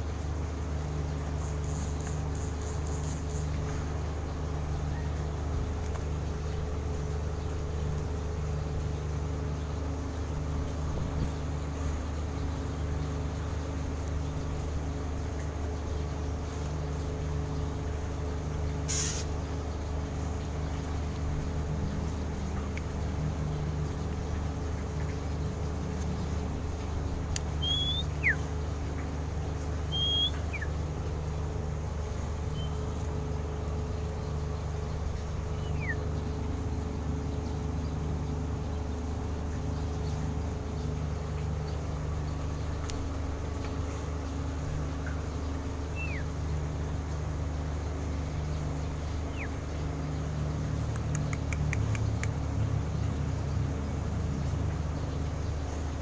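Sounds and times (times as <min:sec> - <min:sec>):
low mechanical hum: 0:00.0 - 0:56.0
short falling bird chirps: 0:27.6 - 0:28.5, 0:29.9 - 0:30.8.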